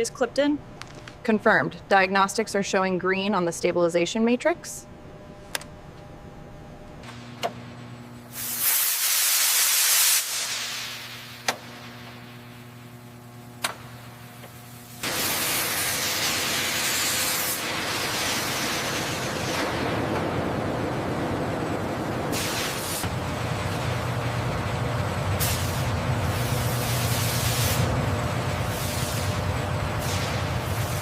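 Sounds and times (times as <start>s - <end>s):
low steady hum: 0.0s - 8.4s
burst of hissing air: 8.3s - 11.4s, 22.3s - 23.1s, 25.4s - 27.9s, 30.0s - 31.0s
loud steady hiss: 8.3s - 12.6s, 14.8s - 19.8s, 22.3s - 23.2s, 25.4s - 28.0s.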